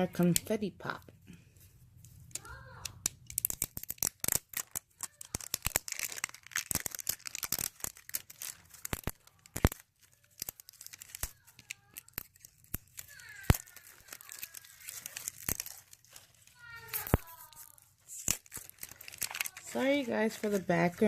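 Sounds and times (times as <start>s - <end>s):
plastic wrapping crinkling and tearing: 2.0s - 21.0s
faint child's voice: 2.4s - 3.0s, 5.0s - 5.6s, 11.3s - 12.3s, 13.0s - 15.3s, 16.4s - 17.9s.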